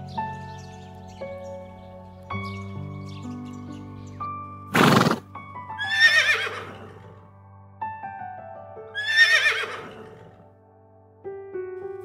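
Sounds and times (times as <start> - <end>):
soft piano music: 0.0 - 12.0
horse breathy snort: 4.7 - 5.3
horse whinnying: 4.7 - 7.2, 9.0 - 10.4.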